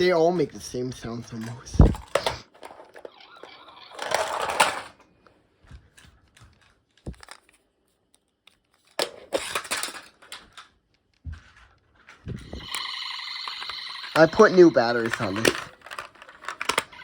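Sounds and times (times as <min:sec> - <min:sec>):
plastic toy trucks rattling: 0:00.0 - 0:05.1, 0:05.7 - 0:07.7, 0:08.5 - 0:17.0.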